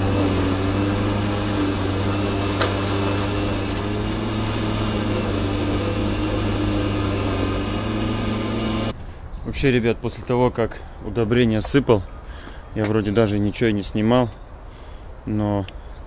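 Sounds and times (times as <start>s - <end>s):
lawn mower engine running: 0.0s - 8.9s.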